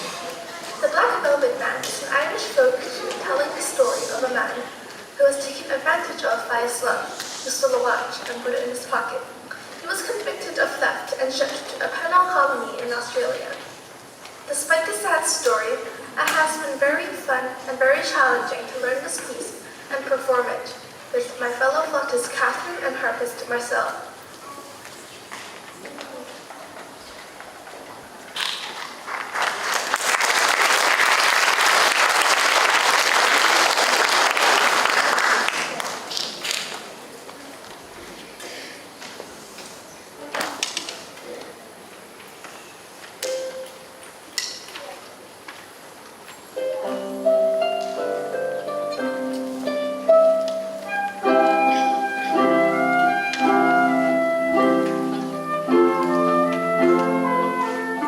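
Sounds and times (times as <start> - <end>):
audience applauding: 28.7 - 36.9
harp plucking folk tune: 46.6 - 58.0
flute: 50.0 - 58.0.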